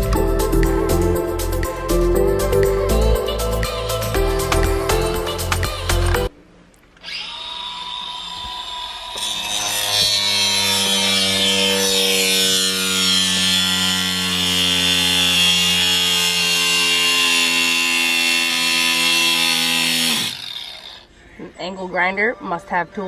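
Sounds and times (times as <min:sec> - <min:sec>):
angle grinder cutting: 0:07.0 - 0:21.1.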